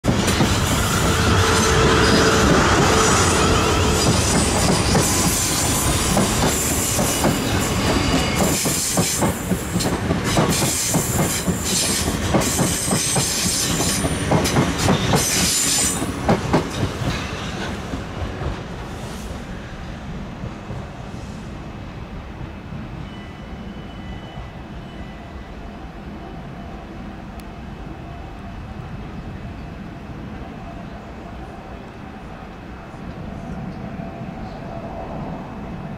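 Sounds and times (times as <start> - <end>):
train rumble: 0.0 - 23.2
train wheels clicking over rail joints: 4.0 - 18.7.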